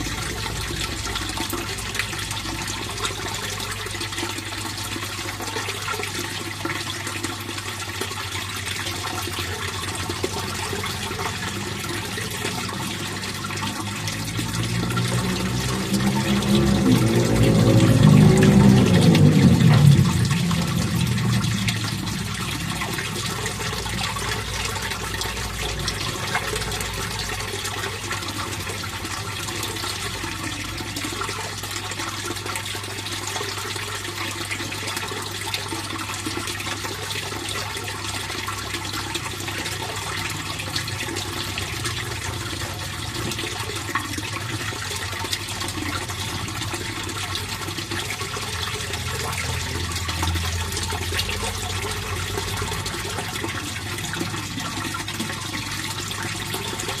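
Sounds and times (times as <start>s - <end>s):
pond water splashing: 0.0s - 57.0s
low steady hum: 7.9s - 34.2s
loud low rumble: 10.6s - 26.4s.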